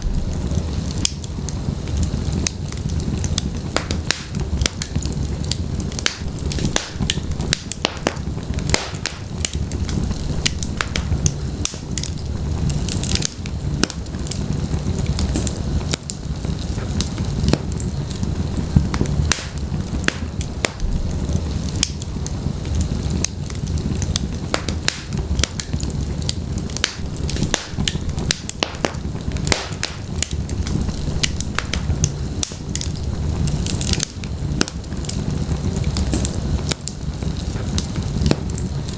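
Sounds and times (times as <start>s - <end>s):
logs crackling in fireplace: 0.0s - 38.9s
low rumble of flames: 0.0s - 38.9s
sharp wood pops: 6.1s - 9.6s, 26.9s - 30.3s.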